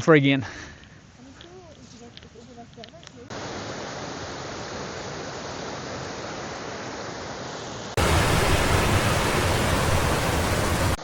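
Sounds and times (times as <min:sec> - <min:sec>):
rushing water: 0:03.3 - 0:11.0.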